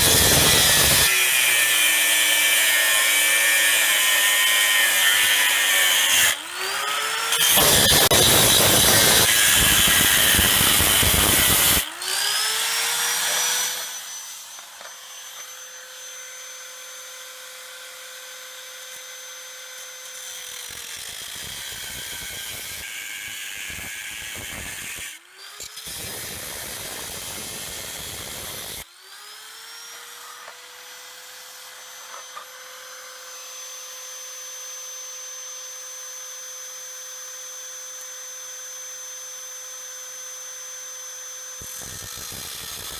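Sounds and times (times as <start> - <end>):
angle grinder cutting metal: 0.0 - 35.5, 36.5 - 42.9.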